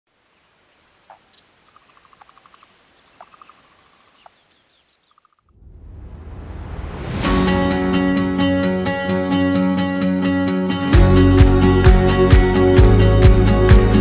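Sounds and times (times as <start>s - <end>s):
faint high hiss: 0.1s - 7.4s
small birds chirping: 0.4s - 5.6s
whooshing swell: 5.5s - 9.4s.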